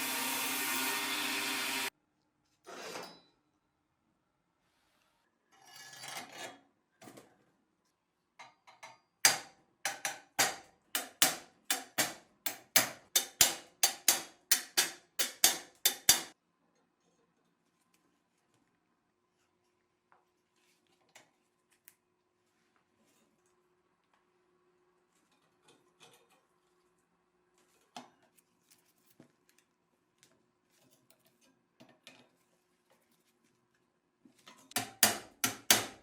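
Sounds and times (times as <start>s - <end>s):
power tool running: 0.0s - 1.9s.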